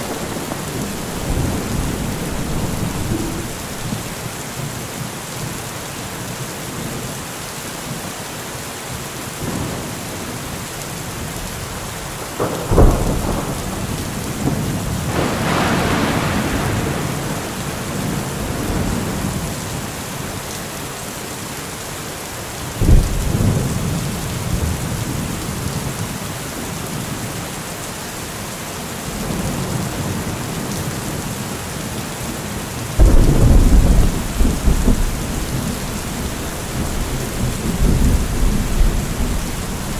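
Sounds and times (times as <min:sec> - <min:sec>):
thunder cracks: 0:00.0 - 0:04.3, 0:12.4 - 0:19.4, 0:33.0 - 0:39.9
rolling thunder rumble: 0:00.0 - 0:04.4, 0:12.4 - 0:19.6, 0:33.0 - 0:39.9
heavy rain falling: 0:00.0 - 0:39.9.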